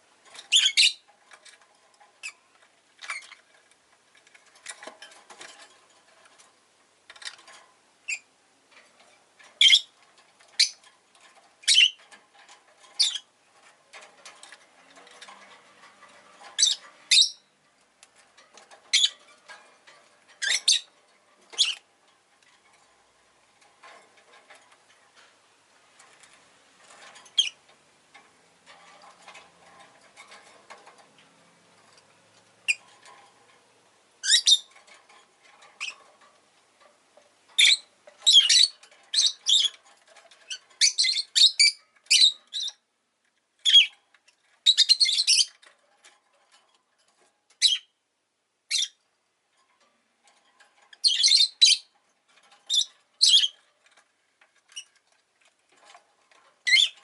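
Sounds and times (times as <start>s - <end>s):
soft bird chatter: 0.2s - 6.5s, 7.1s - 25.4s, 26.0s - 42.9s, 43.6s - 48.0s, 49.6s - 57.0s
lovebird chirping: 0.5s - 1.0s, 9.6s - 9.9s, 11.6s - 12.0s, 16.6s - 17.5s, 20.4s - 20.9s, 34.2s - 34.7s, 37.6s - 39.7s, 40.5s - 42.8s, 44.6s - 45.5s, 51.0s - 51.9s, 52.7s - 53.6s, 56.6s - 57.0s.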